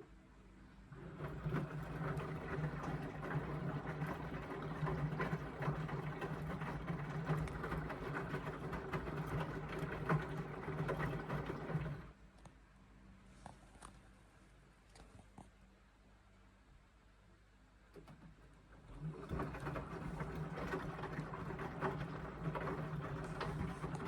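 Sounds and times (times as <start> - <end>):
washing machine drum tumbling: 0.9 - 12.1, 17.9 - 24.0.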